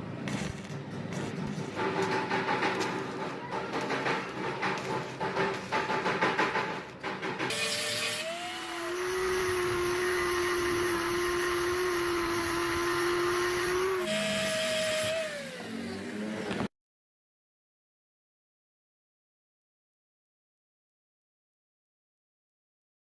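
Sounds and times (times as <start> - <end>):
rattling and scraping: 0.3 - 7.6
electric power tool motor: 7.5 - 16.7.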